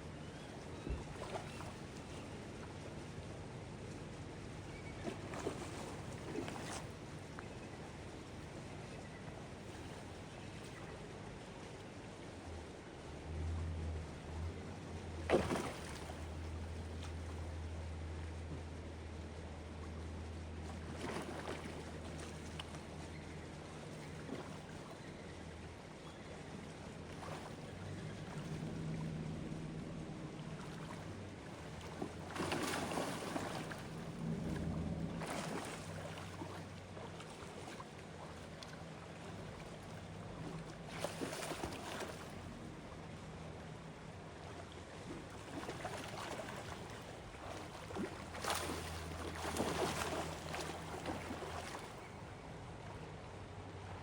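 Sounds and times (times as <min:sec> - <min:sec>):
low motor hum: 0:00.0 - 0:54.0
water splashing: 0:05.0 - 0:07.0, 0:15.2 - 0:17.4, 0:20.7 - 0:22.8, 0:27.0 - 0:29.3, 0:30.1 - 0:43.3, 0:43.9 - 0:53.0.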